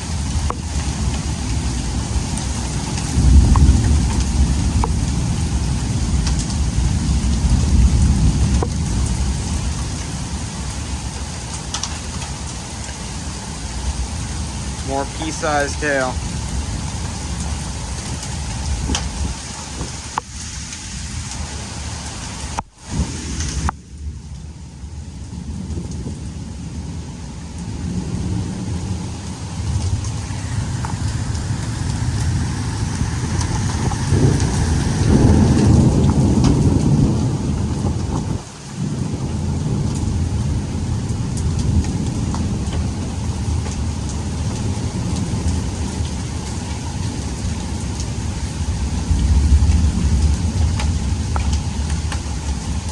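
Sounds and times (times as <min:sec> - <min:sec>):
heavy rain: 0:00.0 - 0:52.9
thunder rumbling: 0:00.0 - 0:52.9
hail ticking: 0:13.8 - 0:20.4, 0:29.2 - 0:40.2.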